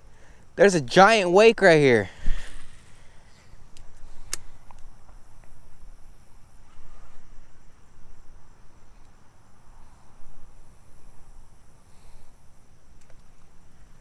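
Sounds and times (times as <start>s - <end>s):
high insect buzz: 0.0s - 14.0s
sharp click: 3.7s - 4.8s.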